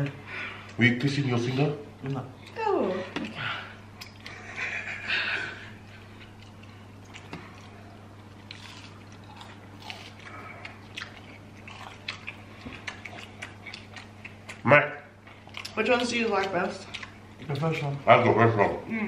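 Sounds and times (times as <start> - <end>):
steady low hum: 0.0 - 19.0
wet chewing sounds: 3.2 - 4.4, 5.8 - 18.0.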